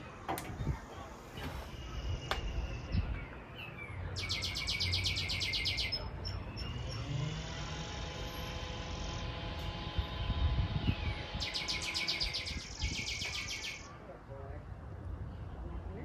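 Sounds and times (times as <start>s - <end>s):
outdoor background noise: 0.0s - 16.0s
birds chirping: 0.1s - 14.0s
rapid high bird trill: 10.7s - 13.9s.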